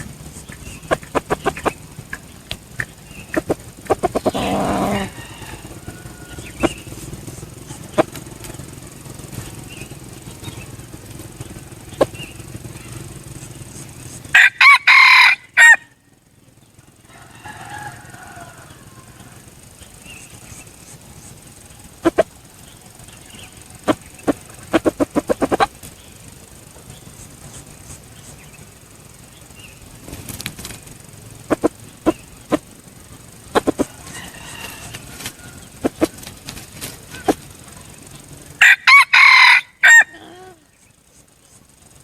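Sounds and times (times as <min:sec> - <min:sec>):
sharp clicks and rustles: 0:00.0 - 0:14.3, 0:19.2 - 0:38.6
faint bird call: 0:00.0 - 0:28.7, 0:38.9 - 0:41.7
rooster crowing: 0:03.4 - 0:09.0, 0:14.3 - 0:16.1, 0:17.0 - 0:20.5, 0:33.7 - 0:36.2, 0:37.1 - 0:40.7.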